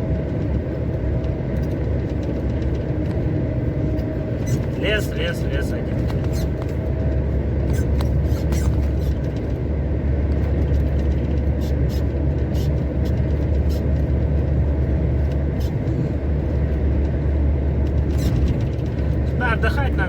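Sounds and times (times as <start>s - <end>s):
truck engine drone and road noise: 0.0s - 20.0s
light clicks and rattles: 10.3s - 11.6s.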